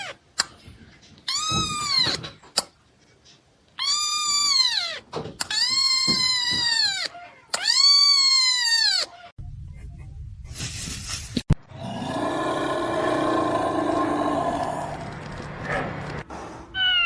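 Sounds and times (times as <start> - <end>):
cat meowing loudly: 16.8 - 17.0.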